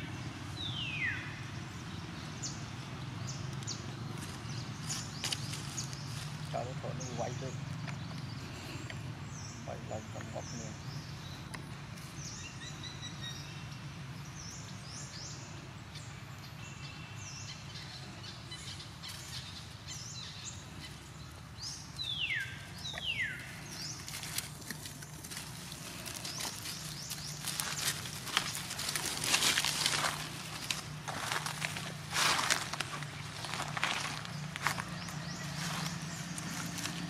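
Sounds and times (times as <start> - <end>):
crackling taps and rustles: 22.9 - 35.2.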